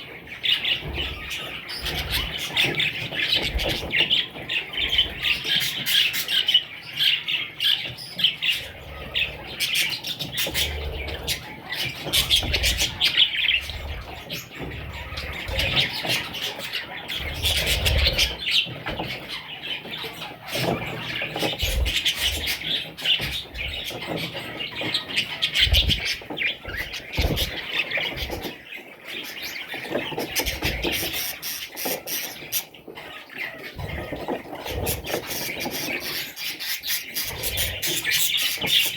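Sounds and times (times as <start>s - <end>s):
budgerigars chattering and squawking: 0.0s - 38.9s.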